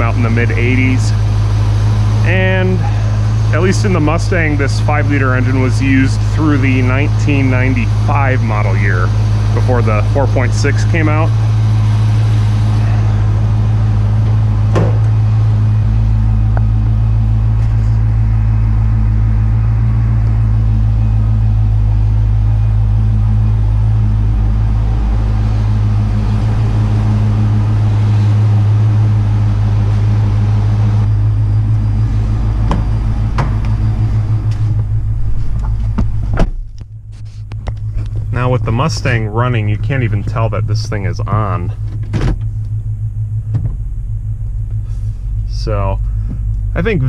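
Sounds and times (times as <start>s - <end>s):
car engine idling: 0.0s - 47.0s.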